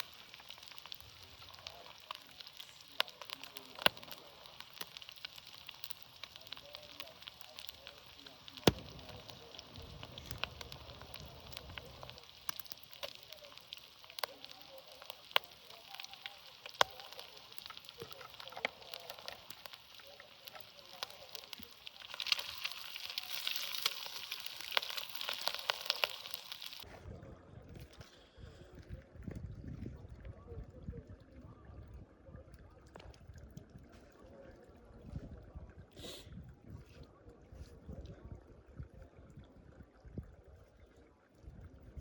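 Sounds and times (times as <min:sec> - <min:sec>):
sharp pops: 0:00.0 - 0:26.8
crackling open fire: 0:00.0 - 0:26.9
fat sizzling in a pan: 0:00.0 - 0:26.9.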